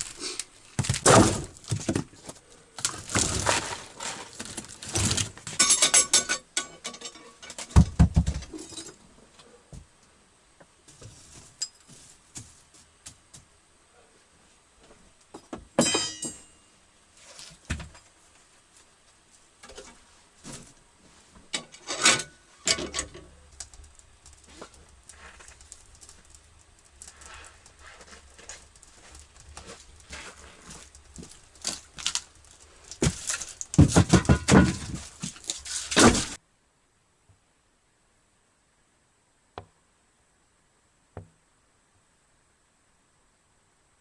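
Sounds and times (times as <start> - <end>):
objects clattering and knocking: 0.0 - 9.0, 21.5 - 36.4.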